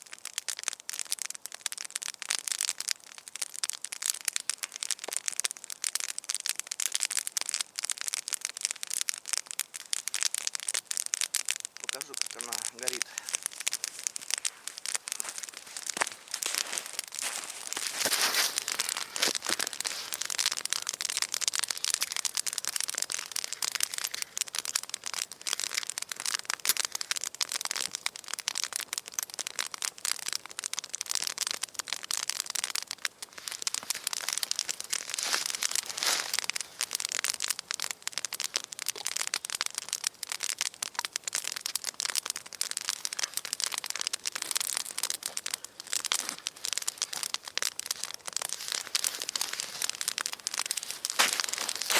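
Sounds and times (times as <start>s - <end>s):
campfire crackling: 0.0s - 51.9s.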